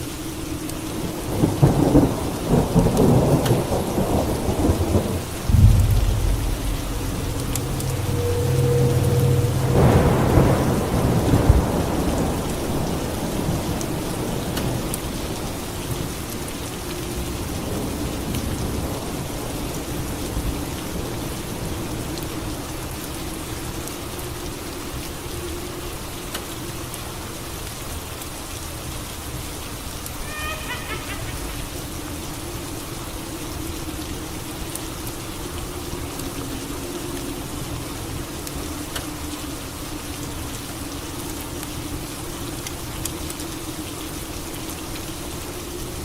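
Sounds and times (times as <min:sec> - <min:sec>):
steady rain: 0:00.0 - 0:46.0
thunder rumbling: 0:01.3 - 0:14.8.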